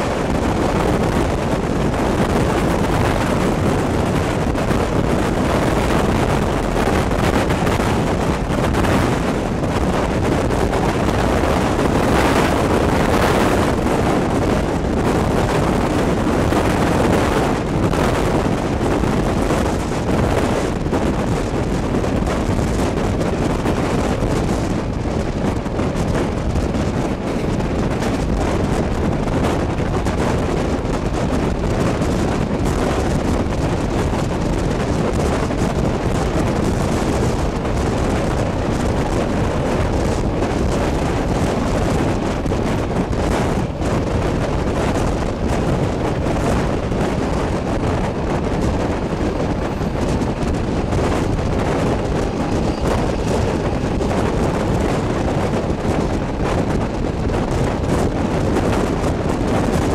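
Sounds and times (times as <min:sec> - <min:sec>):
train carriage rumbling on track: 0:00.0 - 0:59.9
wind buffeting microphone: 0:00.0 - 0:59.9.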